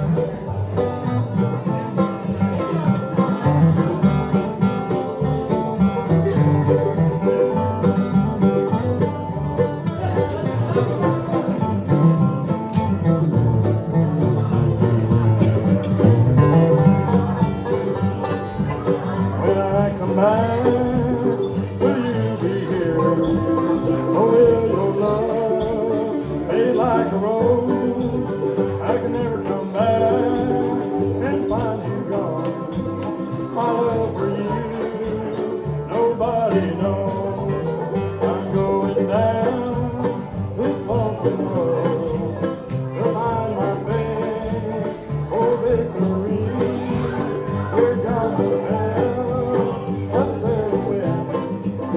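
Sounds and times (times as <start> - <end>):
bluegrass band playing: 0.0 - 51.9.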